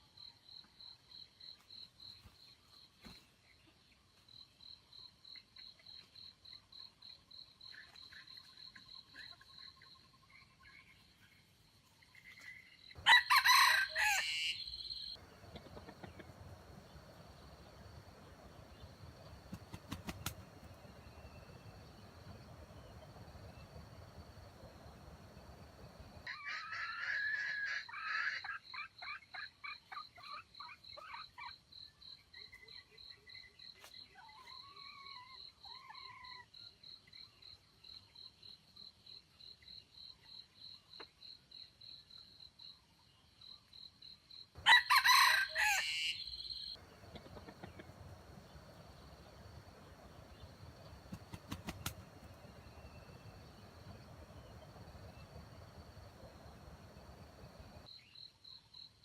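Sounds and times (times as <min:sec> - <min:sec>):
insect chirping: 0:12.6 - 0:26.3, 0:36.8 - 0:59.0
rooster crowing: 0:13.0 - 0:15.2, 0:44.6 - 0:46.8
chicken calls: 0:13.0 - 0:31.5, 0:44.6 - 0:57.9.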